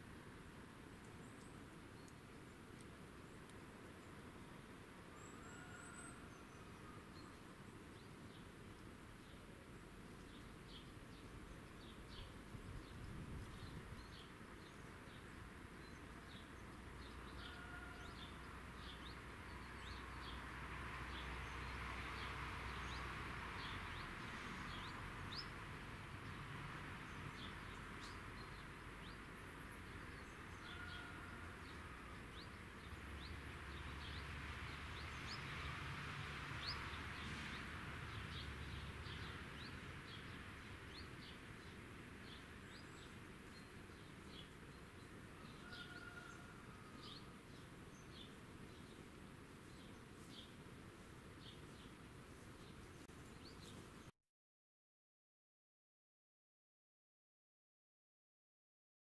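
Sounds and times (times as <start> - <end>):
small birds chirping: 36.6 - 46.3, 47.0 - 54.1.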